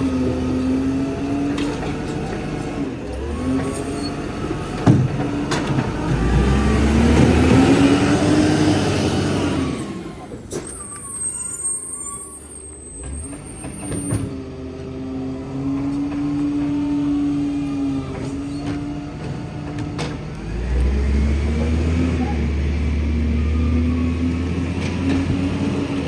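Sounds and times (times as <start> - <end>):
garbage truck engine humming: 0.0 - 26.0.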